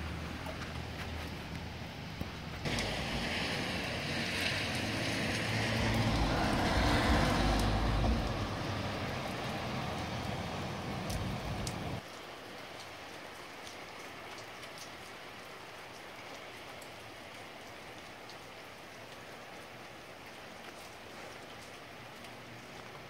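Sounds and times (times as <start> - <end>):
raindrops ticking on a surface: 0.0 - 23.0
steady rain falling: 0.0 - 23.0
low rumble: 5.7 - 12.0.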